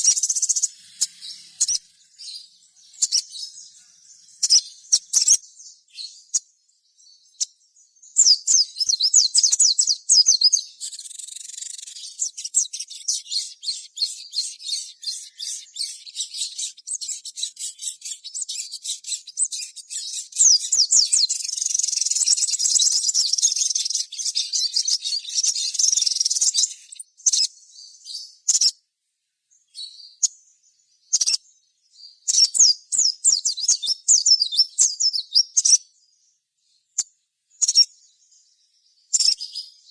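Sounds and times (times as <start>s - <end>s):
bird trilling: 0.0s - 5.4s, 8.2s - 27.5s, 32.3s - 35.8s, 37.6s - 37.9s
bird chirps: 0.0s - 28.8s, 29.5s - 39.9s.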